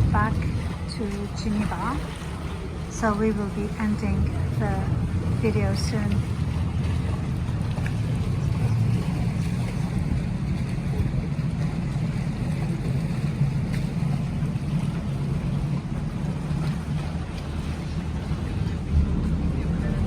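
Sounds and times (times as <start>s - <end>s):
boat engine droning: 0.0s - 20.0s
rush of water and air: 0.0s - 20.0s.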